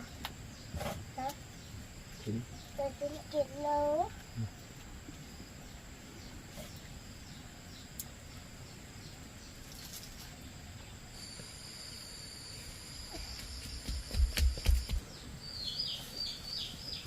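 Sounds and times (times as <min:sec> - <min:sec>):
high-pitched insect trill: 0:11.1 - 0:15.0.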